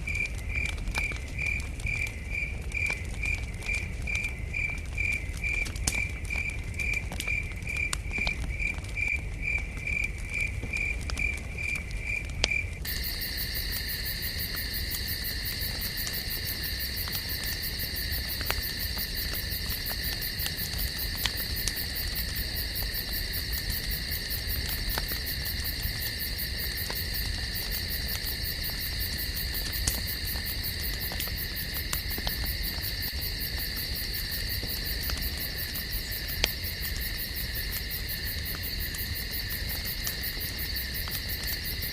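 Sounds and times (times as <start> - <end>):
campfire crackling: 0.0 - 41.9
crickets chirping: 0.0 - 41.9.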